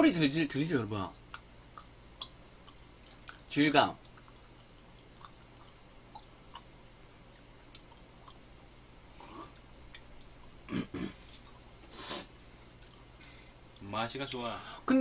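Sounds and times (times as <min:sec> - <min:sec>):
chewing mouth clicks and smacks: 0:01.1 - 0:08.6, 0:09.5 - 0:10.6, 0:12.7 - 0:13.1.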